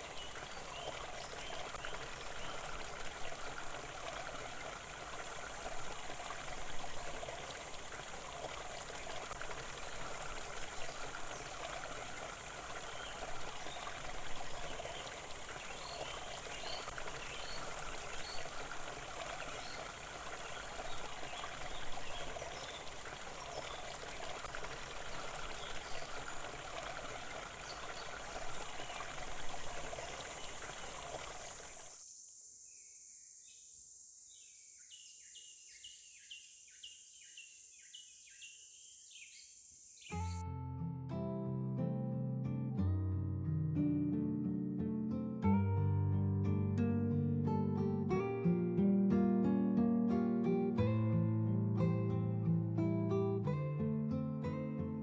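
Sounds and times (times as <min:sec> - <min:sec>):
stream babbling: 0:00.0 - 0:32.0, 0:40.4 - 0:55.0
faint bird chirps: 0:32.6 - 0:40.4.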